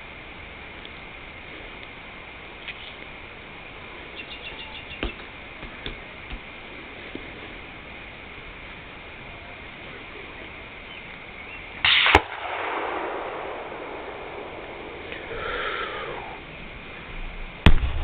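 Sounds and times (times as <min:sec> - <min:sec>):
rush of noise: 0:05.1 - 0:18.0
distant rifle shots: 0:11.8 - 0:15.1
low rumble: 0:12.4 - 0:18.0.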